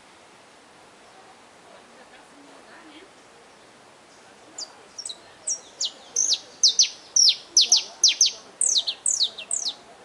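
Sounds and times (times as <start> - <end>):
finch singing whistled notes: 4.6 - 9.8.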